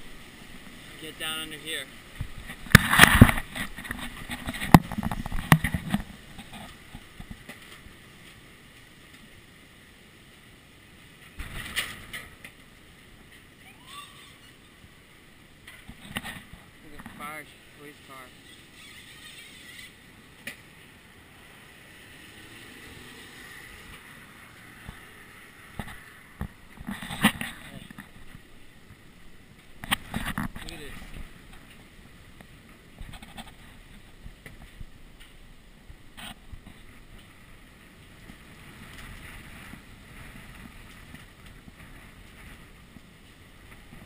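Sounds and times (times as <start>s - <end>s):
muffled rush of wind: 20.0s - 44.0s.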